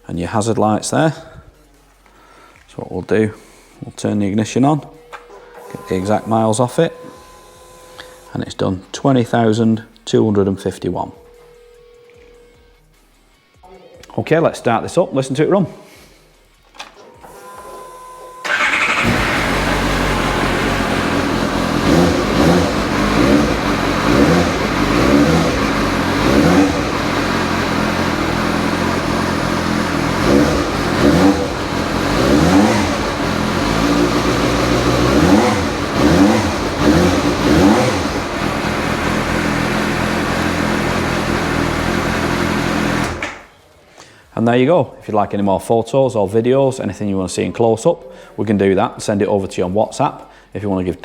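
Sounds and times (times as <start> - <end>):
motorcycle engine revving: 18.4 - 43.5.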